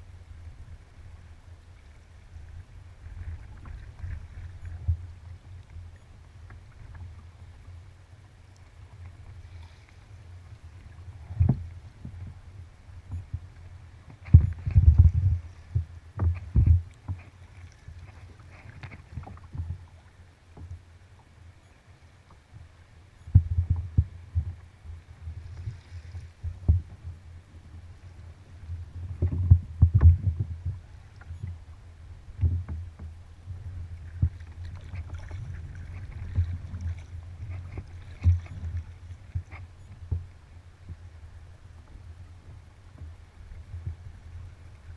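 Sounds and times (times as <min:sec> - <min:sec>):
paddle splashing water: 0:00.4 - 0:44.9
water slapping against hull: 0:13.0 - 0:20.8, 0:32.3 - 0:41.0.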